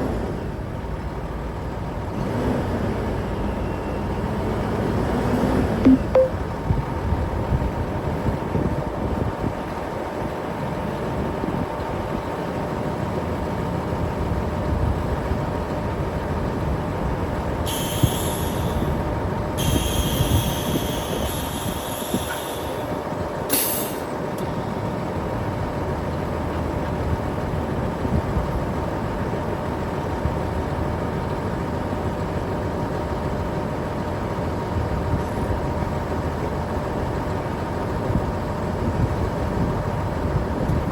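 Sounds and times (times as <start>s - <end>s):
truck engine rumble and whine: 0.0s - 40.9s
loud air hissing: 17.7s - 18.9s, 19.6s - 24.1s.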